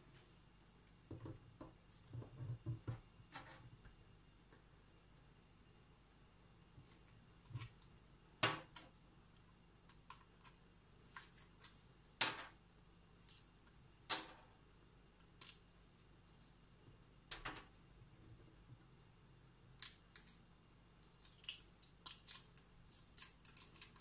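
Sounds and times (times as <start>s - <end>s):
egg shell cracking: 21.0s - 24.0s.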